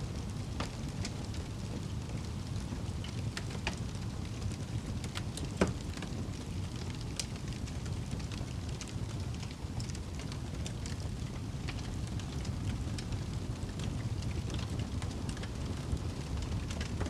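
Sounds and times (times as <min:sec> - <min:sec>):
low fire rumble: 0:00.0 - 0:17.0
wood fire crackling: 0:00.1 - 0:17.0
fire popping: 0:06.1 - 0:17.0.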